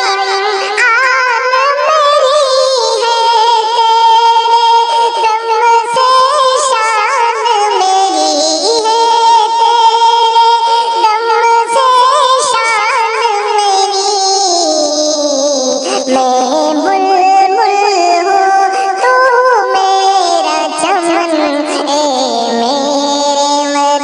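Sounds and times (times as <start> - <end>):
high-pitched voice singing: 0.0 - 24.0.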